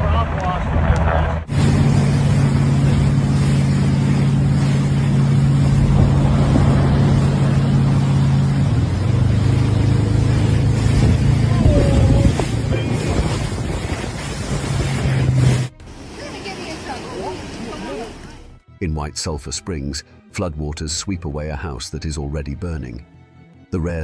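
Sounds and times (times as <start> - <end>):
rushing noise: 0.0 - 18.5.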